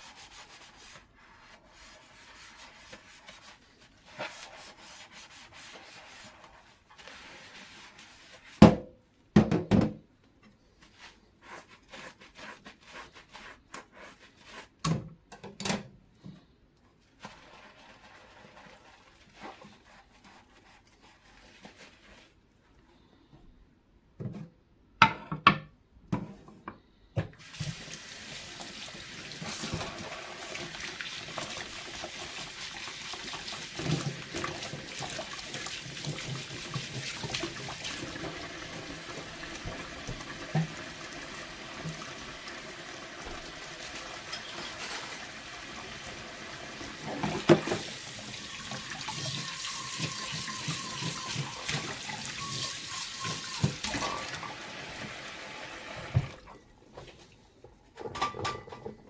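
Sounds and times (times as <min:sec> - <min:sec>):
tap running into sink: 0:39.1 - 0:41.0, 0:43.2 - 0:45.3, 0:46.8 - 0:48.0, 0:48.6 - 0:54.4.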